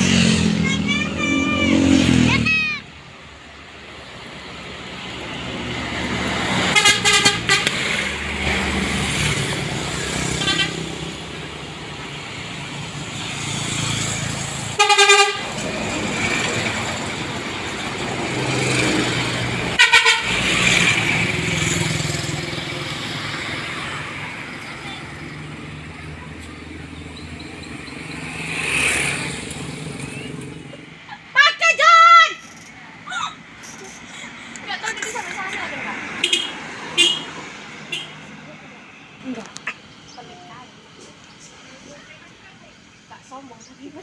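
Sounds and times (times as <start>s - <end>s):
heavy vehicles passing: 0.0s - 44.0s
vehicle horns tooting: 6.6s - 8.0s, 10.2s - 11.0s, 14.8s - 15.7s, 19.7s - 20.8s, 36.2s - 38.2s.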